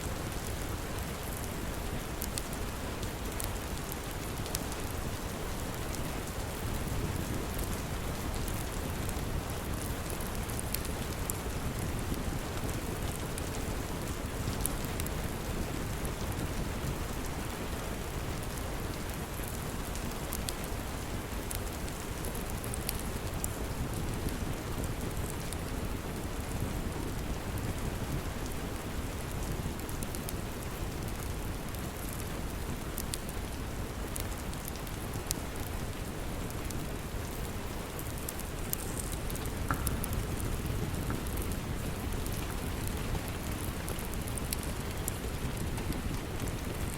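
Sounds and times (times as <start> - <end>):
steady rain: 0.0 - 46.9
wood fire crackling and popping: 0.0 - 46.9.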